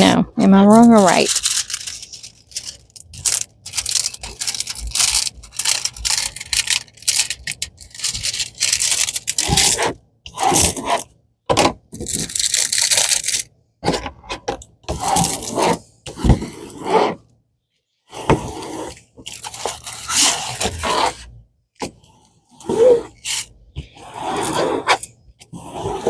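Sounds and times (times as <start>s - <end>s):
plastic packaging rustling: 0.7s - 9.9s, 12.0s - 13.5s.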